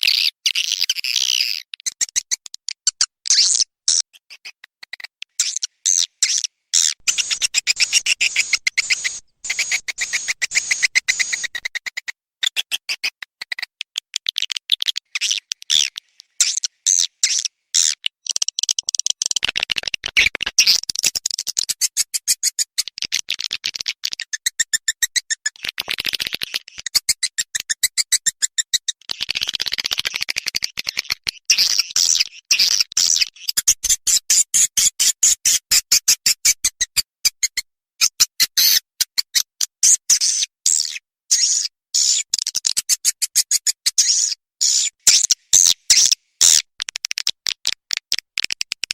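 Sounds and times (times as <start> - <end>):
high-pitched chirping bird call: 5.3 - 11.8, 44.0 - 46.6.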